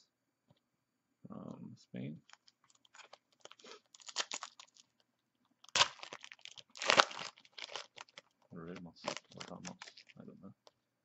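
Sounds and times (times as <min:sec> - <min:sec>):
foil wrapper crinkling: 0:02.3 - 0:05.0, 0:05.6 - 0:08.4, 0:09.0 - 0:10.2.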